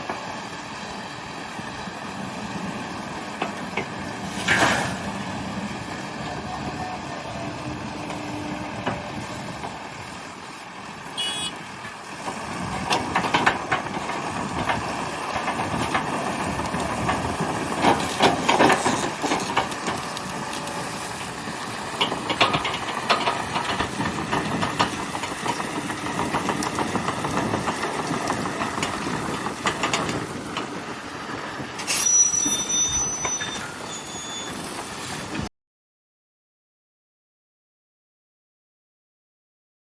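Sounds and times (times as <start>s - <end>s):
diesel machinery running: 0.0s - 35.5s.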